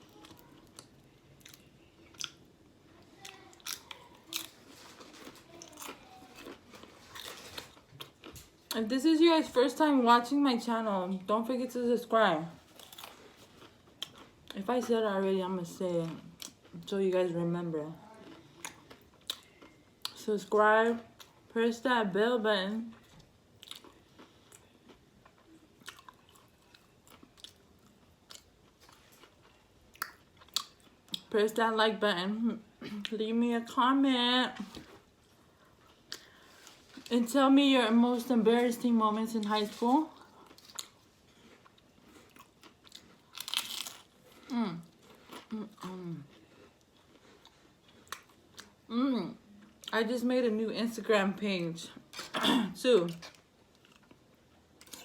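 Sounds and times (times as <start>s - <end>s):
chewing and biting food: 12.7s - 14.6s, 23.0s - 31.2s, 39.7s - 48.8s.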